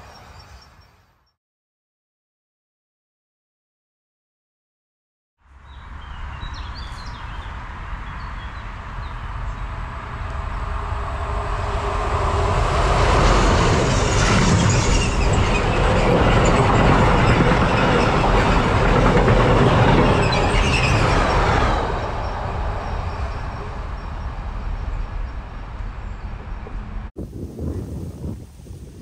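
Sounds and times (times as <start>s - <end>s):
train wheels rolling over rails: 9.6s - 27.1s.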